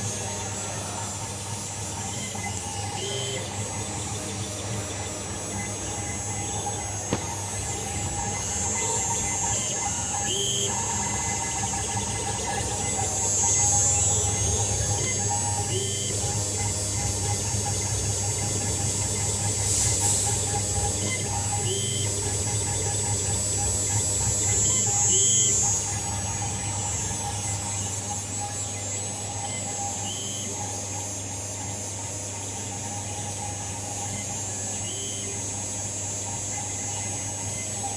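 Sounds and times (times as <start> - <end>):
engraving machine humming: 0.0 - 37.9
high-pitched machine whine: 0.0 - 37.9.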